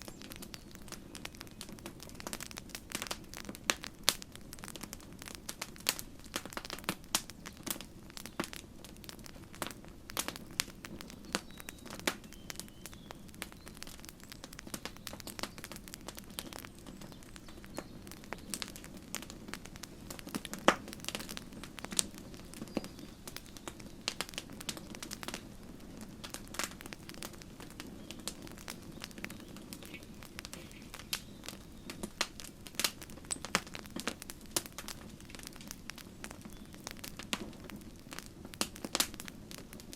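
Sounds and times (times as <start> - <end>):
campfire crackling and popping: 0.0 - 39.9
low rumble of burning fire: 0.0 - 39.9.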